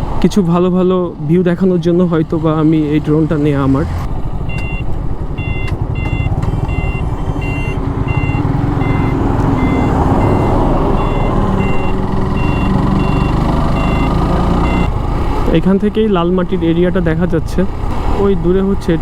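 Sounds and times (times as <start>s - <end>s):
motorcycle engine rumble: 0.0s - 19.0s
short electronic beeps: 4.5s - 14.9s.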